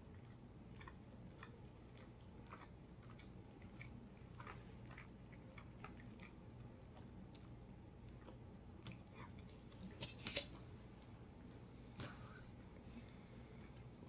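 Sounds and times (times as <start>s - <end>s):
quiet chewing: 0.0s - 10.7s.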